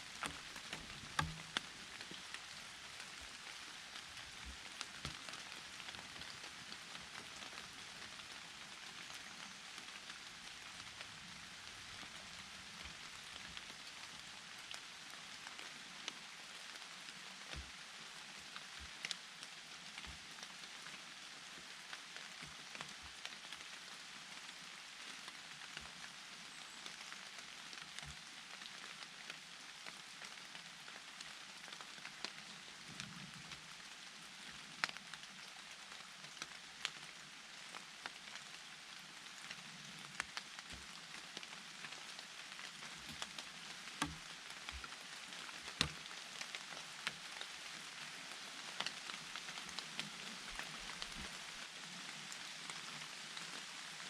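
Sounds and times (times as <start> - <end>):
raindrops ticking: 0.0 - 23.8, 39.4 - 53.5
rain hissing in forest: 0.0 - 54.0
dull tap: 0.2 - 1.6.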